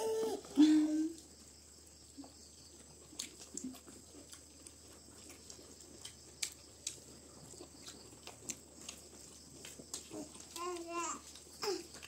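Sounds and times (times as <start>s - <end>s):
wet chewing clicks and smacks: 2.3s - 12.0s.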